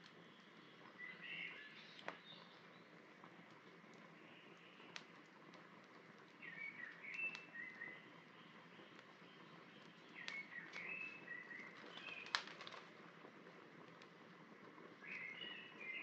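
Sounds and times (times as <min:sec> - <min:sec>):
wood fire crackling: 0:00.0 - 0:16.0
songbird whistling: 0:01.0 - 0:02.5, 0:06.4 - 0:08.1, 0:08.8 - 0:12.4, 0:15.0 - 0:16.0
fire pop: 0:01.9 - 0:15.4.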